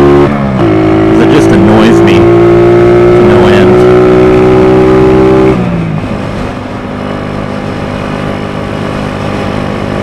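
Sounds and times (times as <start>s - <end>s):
motorbike engine revving: 0.0s - 6.3s.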